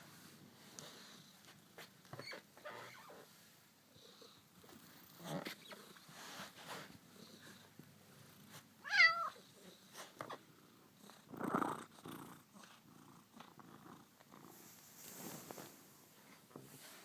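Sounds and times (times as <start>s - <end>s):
cat meowing: 8.8s - 9.4s.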